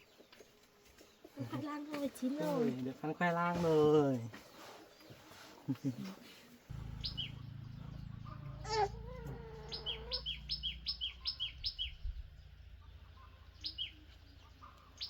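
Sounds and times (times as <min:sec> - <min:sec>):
steady low hum: 0:06.7 - 0:14.1
small bird chirping: 0:06.7 - 0:15.0.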